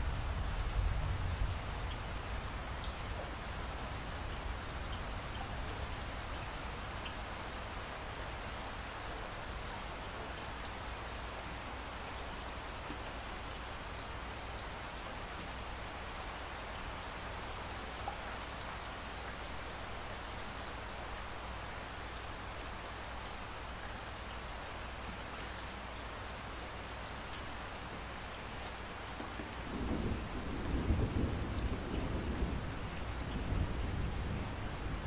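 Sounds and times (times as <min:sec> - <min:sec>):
steady rain falling: 0:00.0 - 0:35.0
thunder rumbling: 0:29.6 - 0:35.0.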